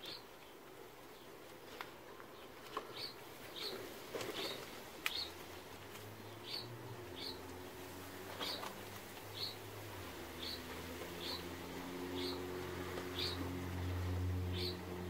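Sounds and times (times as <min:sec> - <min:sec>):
small bird chirping: 0:02.9 - 0:05.4, 0:06.3 - 0:07.5, 0:09.3 - 0:09.6, 0:10.3 - 0:11.5, 0:12.1 - 0:12.5, 0:13.1 - 0:13.5, 0:14.5 - 0:14.9.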